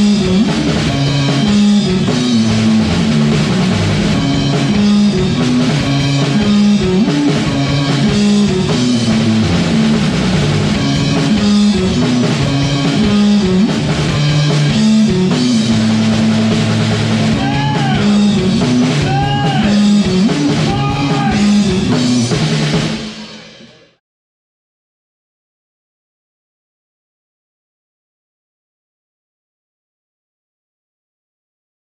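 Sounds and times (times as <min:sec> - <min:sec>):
bent guitar notes: 0:00.0 - 0:22.4
rock band playing live: 0:00.0 - 0:23.9.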